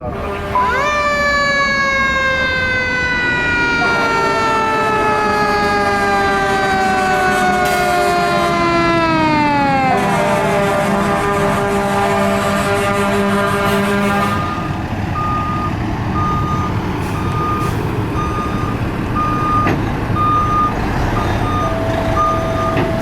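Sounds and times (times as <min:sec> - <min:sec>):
mechanical siren wailing: 0:00.0 - 0:16.4, 0:21.3 - 0:23.0.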